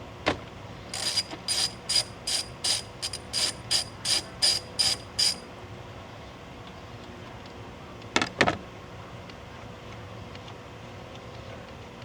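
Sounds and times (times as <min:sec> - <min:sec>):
socket ratchet clicking: 0:01.0 - 0:05.4.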